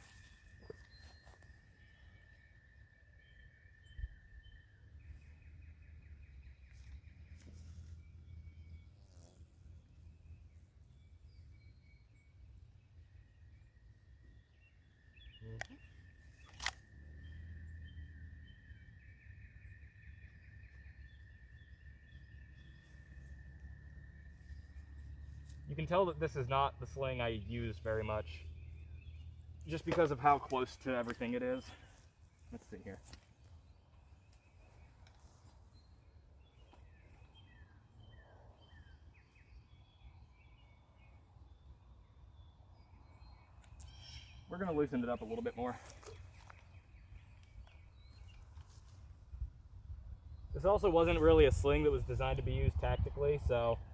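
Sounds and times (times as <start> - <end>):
faint bird calls: 0.0 - 49.4
low outdoor rumble: 16.8 - 31.6.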